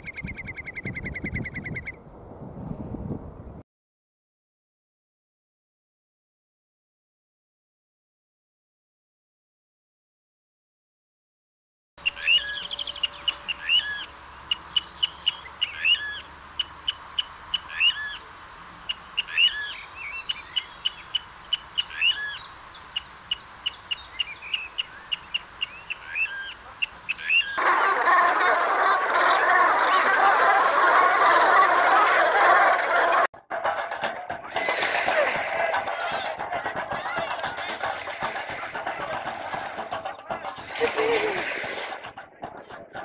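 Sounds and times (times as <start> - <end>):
bird chips: 0.0 - 2.0
swooping whistled bird calls: 0.0 - 2.0, 12.0 - 27.6.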